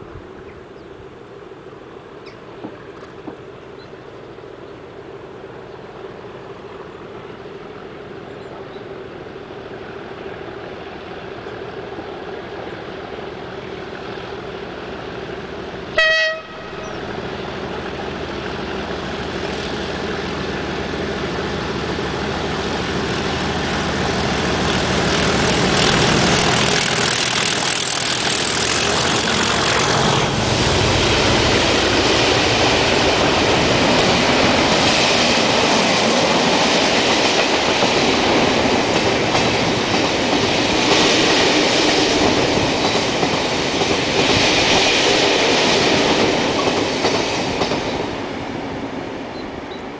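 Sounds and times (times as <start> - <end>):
diesel locomotives working hard: 0.0 - 49.9
passing train rumble: 0.0 - 49.9
train horn blast: 15.9 - 17.1.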